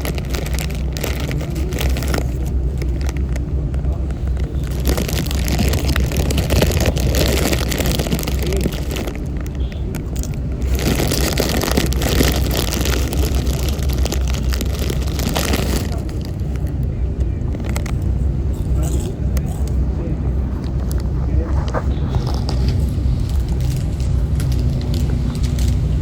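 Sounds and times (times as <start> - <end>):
low engine rumble: 0.0 - 26.0
wind on microphone: 19.8 - 26.0.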